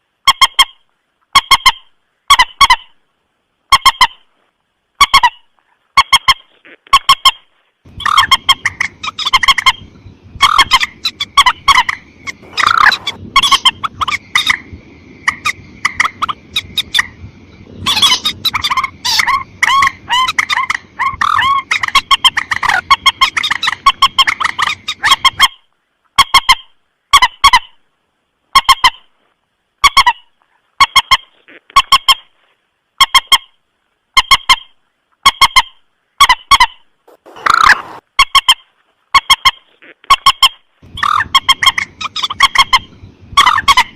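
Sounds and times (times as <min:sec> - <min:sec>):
background hiss: 0:00.0 - 0:43.9
rail bird honking calls: 0:07.0 - 0:25.6, 0:35.5 - 0:38.5, 0:40.2 - 0:43.9.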